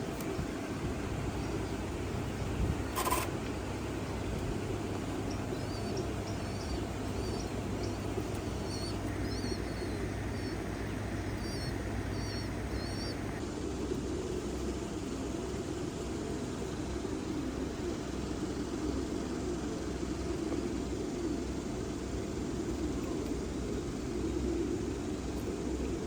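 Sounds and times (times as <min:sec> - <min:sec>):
pigeons cooing: 0:00.0 - 0:15.2, 0:16.2 - 0:26.0.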